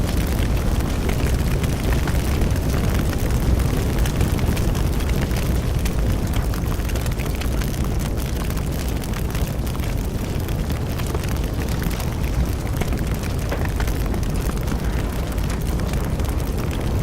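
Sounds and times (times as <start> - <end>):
bonfire flames rumbling: 0.0 - 17.0
fire crackles and pops: 0.0 - 17.0.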